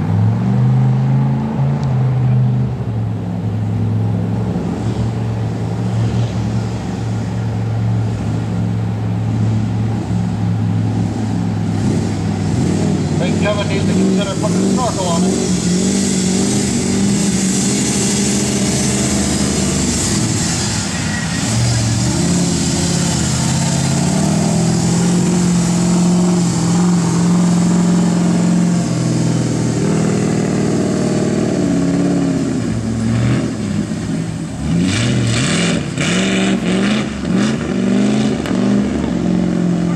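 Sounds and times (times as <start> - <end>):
pickup engine revving: 0.0 - 39.9.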